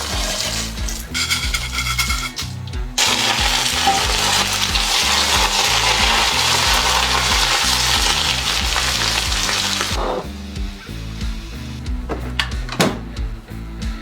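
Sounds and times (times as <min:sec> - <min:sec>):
food sizzling in hot oil: 0:00.0 - 0:11.8
background music: 0:00.0 - 0:14.0.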